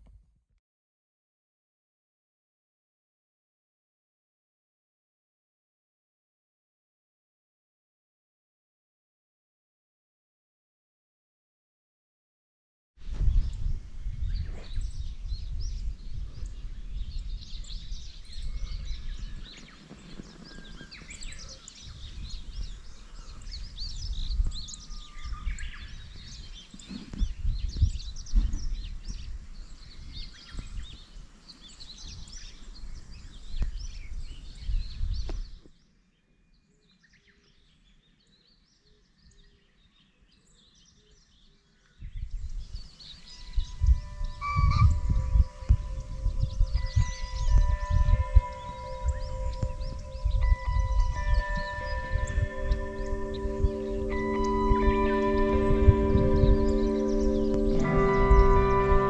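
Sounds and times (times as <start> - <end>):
small birds chirping: 13.2 - 59.0.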